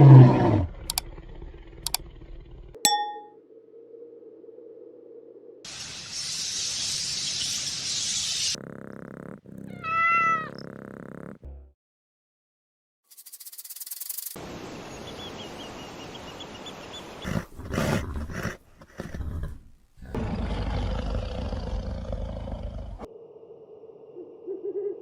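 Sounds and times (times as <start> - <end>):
steady hiss: 5.7 - 8.6
cat meowing: 9.7 - 10.6.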